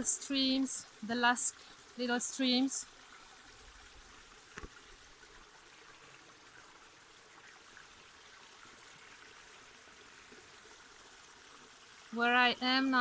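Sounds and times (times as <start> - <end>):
small stream running: 0.0 - 13.0.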